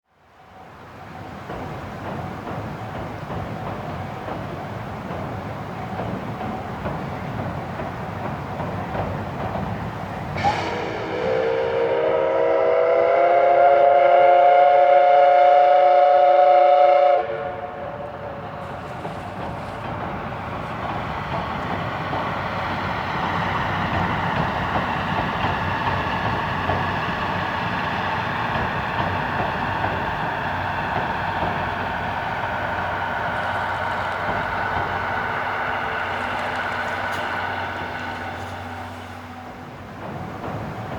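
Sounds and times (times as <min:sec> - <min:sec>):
train rolling on rails: 0:00.0 - 0:40.9
steam whistle blast: 0:10.4 - 0:18.2, 0:33.4 - 0:39.8.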